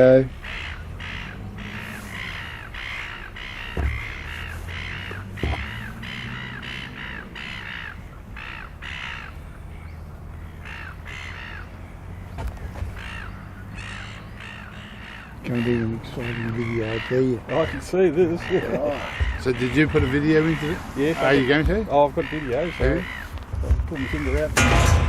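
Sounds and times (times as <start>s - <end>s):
crows cawing: 0.0s - 25.0s
sharp thumps: 3.6s - 6.0s, 19.0s - 20.8s, 21.5s - 25.0s.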